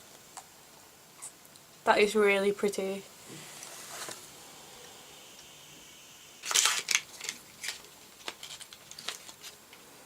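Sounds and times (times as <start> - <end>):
packaging rustling: 6.4 - 9.8.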